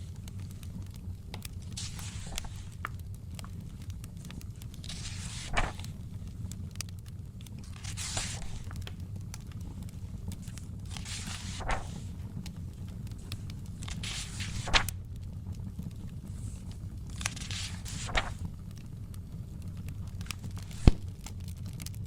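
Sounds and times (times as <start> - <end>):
low steady rumble: 0.0 - 20.8
crackling wood fire: 0.0 - 22.0
book pages turning: 0.5 - 6.6, 7.5 - 15.0, 16.0 - 18.8, 20.1 - 21.1.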